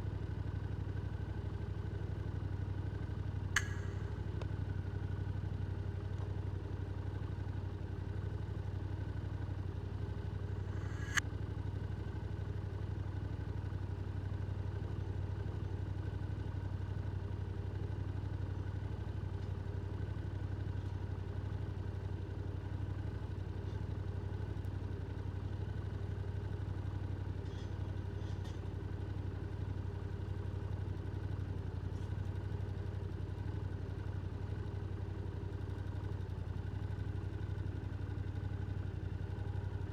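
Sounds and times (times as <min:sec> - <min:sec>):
motorcycle engine running: 0:00.0 - 0:39.9
sharp click: 0:03.6 - 0:04.2, 0:10.6 - 0:11.2.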